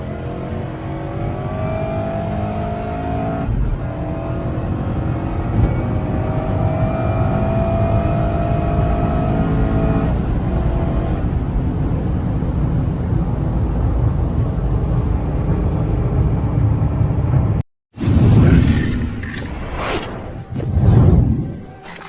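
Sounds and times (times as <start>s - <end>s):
thin rising whine: 0.0s - 11.2s
car engine while driving: 0.0s - 17.6s
road noise: 0.0s - 17.6s.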